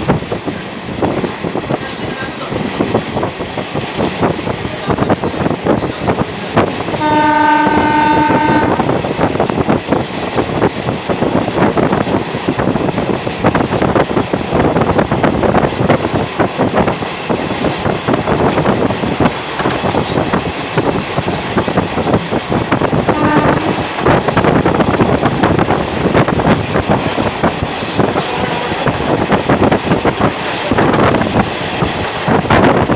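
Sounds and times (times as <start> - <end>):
train rumbling on rails: 0.0 - 32.9
train horn: 6.9 - 9.0, 23.0 - 24.2.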